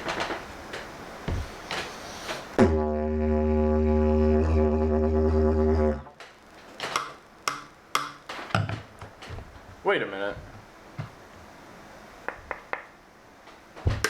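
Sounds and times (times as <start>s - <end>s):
low buzzing drone: 2.6s - 6.2s.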